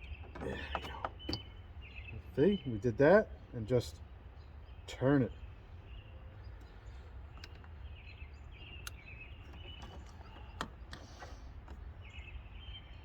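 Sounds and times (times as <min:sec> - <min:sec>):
small birds chirping: 0:00.0 - 0:13.0
clicks on plastic housing: 0:08.8 - 0:11.8.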